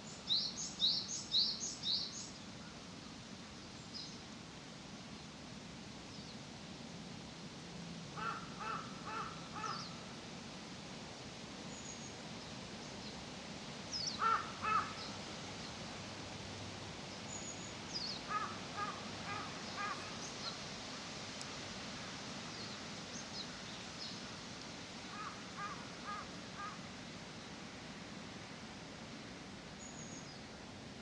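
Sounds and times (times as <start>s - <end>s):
small birds chirping: 0.0s - 2.5s, 13.9s - 15.8s
crow cawing: 8.2s - 9.8s, 14.2s - 15.0s, 18.3s - 20.1s, 25.1s - 26.8s.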